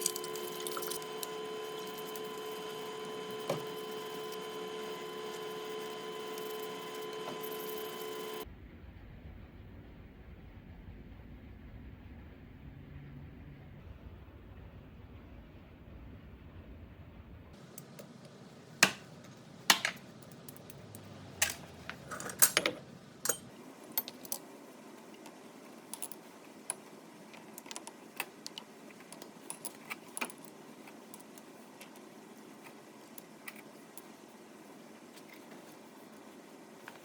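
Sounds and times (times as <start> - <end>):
small metal parts clinking: 0.0 - 2.3, 21.4 - 24.4.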